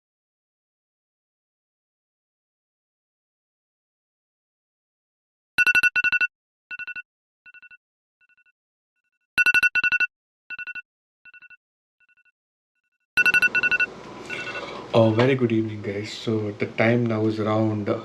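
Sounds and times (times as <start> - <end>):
electronic ringtone bleeps: 5.6 - 7.8, 9.4 - 11.6, 13.2 - 15.2.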